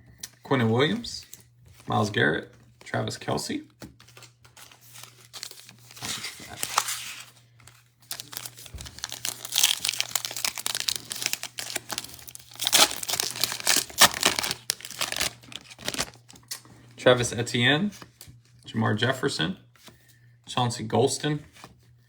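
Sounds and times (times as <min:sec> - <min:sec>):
foil wrapper tearing and crinkling: 0:04.7 - 0:07.3, 0:08.0 - 0:16.4.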